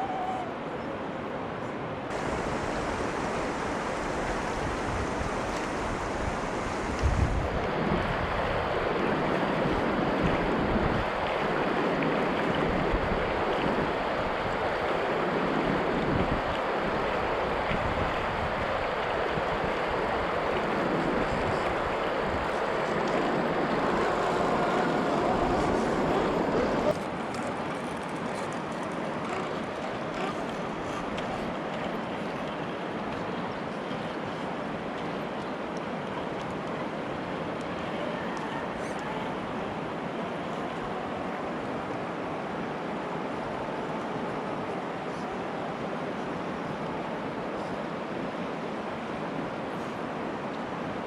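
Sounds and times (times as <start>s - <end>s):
toy truck driving rushing noise: 22.8s - 30.5s.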